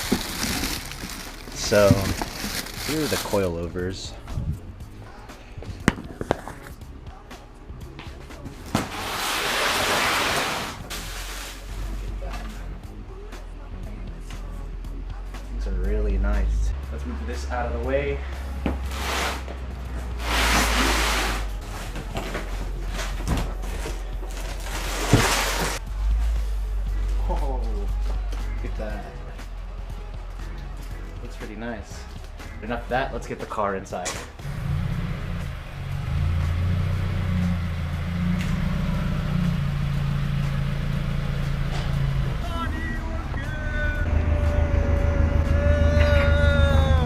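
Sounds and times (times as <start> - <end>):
packaging scraping and rustling: 0.0 - 3.6, 20.2 - 25.8
car engine running at low revs: 34.4 - 47.0.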